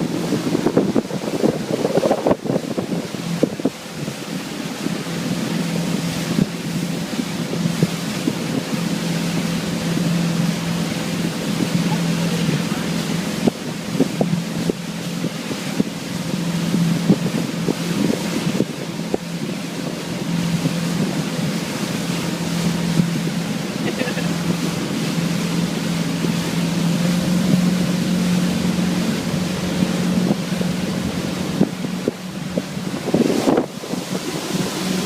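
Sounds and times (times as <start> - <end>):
motorboat engine drone: 0.0 - 35.0
water rushing: 0.0 - 35.0
wind buffeting microphone: 0.0 - 35.0.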